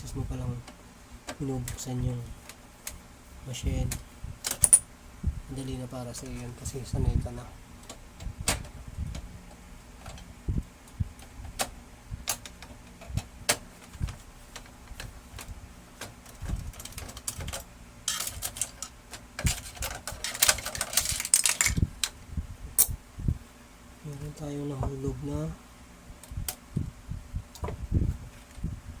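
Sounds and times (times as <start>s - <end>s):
rapid plastic rattling: 12.3s - 21.9s
plastic parts clicking and knocking: 12.3s - 22.2s.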